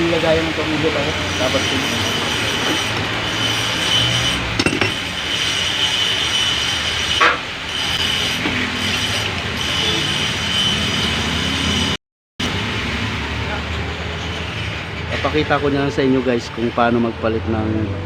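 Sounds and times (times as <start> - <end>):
mechanical hum with high whine: 1.1 - 15.1.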